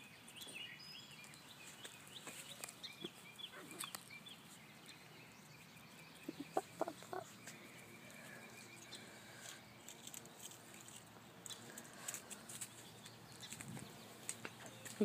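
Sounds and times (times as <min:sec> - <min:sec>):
faint birds chirping: 0:00.0 - 0:15.0
puppies yipping: 0:06.2 - 0:08.2.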